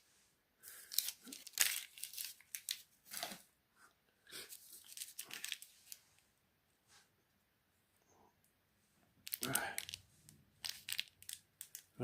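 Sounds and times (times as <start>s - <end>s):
model foliage rustling and crinkling: 0.7s - 3.5s, 4.4s - 6.3s.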